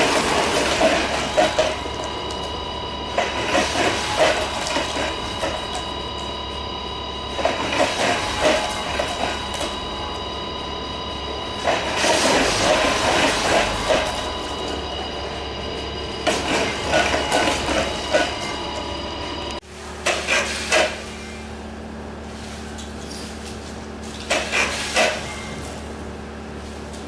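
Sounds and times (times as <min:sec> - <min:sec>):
machine motor hum: 0:00.0 - 0:20.1.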